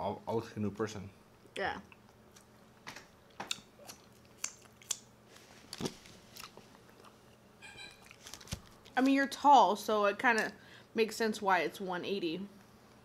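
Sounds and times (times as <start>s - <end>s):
chewing crispy fried chicken: 3.3s - 5.1s, 5.7s - 8.9s
wet mouth clicks: 3.5s - 5.1s.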